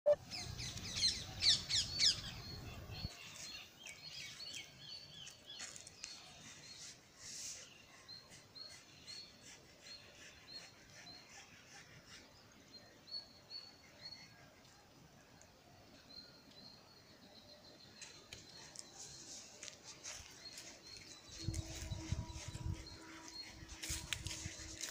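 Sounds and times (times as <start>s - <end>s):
small birds chirping: 0.1s - 24.9s.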